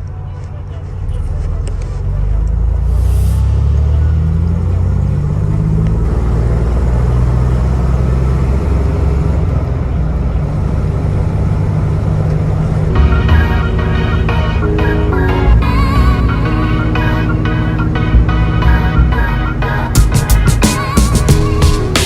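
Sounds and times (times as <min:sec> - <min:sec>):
pickup engine drone: 0:00.0 - 0:22.0
road noise: 0:00.0 - 0:22.0
music: 0:12.9 - 0:22.0.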